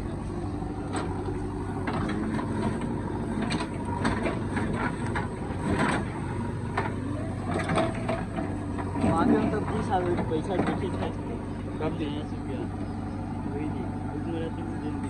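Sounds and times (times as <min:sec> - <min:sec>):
diesel engine running: 0:00.0 - 0:15.0
knocks and clanks: 0:00.9 - 0:11.3.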